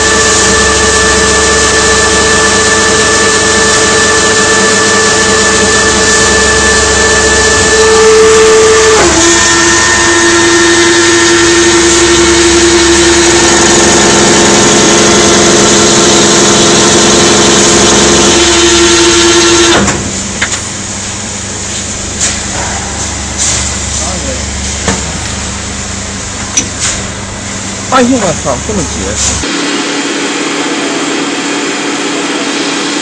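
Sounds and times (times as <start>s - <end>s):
lathe hissing with whine: 0.0s - 16.4s.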